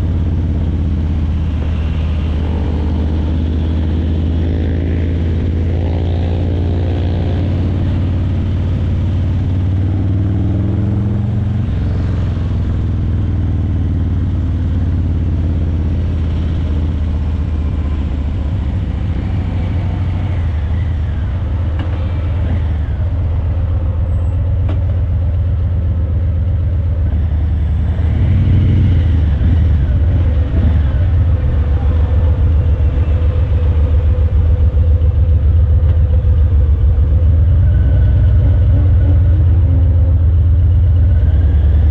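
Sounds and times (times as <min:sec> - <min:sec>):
motorcycle engine riding slowly: 0:00.0 - 0:41.9.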